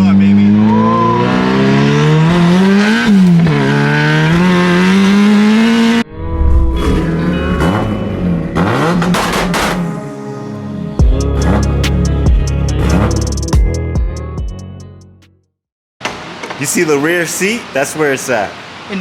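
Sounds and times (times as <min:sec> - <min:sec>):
turbo car engine accelerating: 0:00.0 - 0:10.2, 0:11.0 - 0:13.6.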